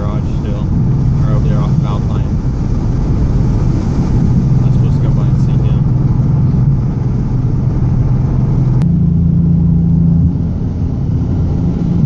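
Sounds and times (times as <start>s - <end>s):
car engine driving: 0.0s - 12.0s
road noise: 0.0s - 12.0s.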